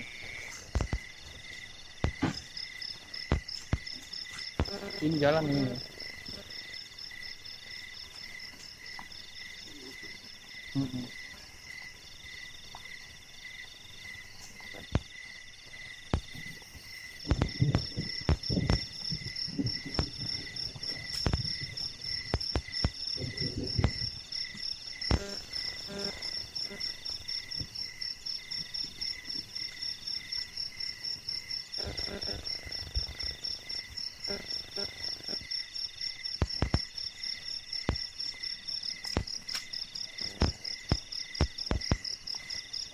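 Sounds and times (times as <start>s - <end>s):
crickets and insects chirping: 0.0s - 42.9s.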